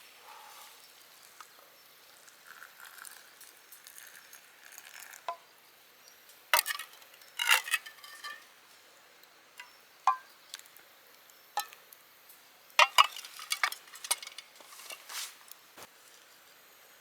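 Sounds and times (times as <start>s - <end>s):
metal utensil clinking on cookware: 12.8s - 15.2s.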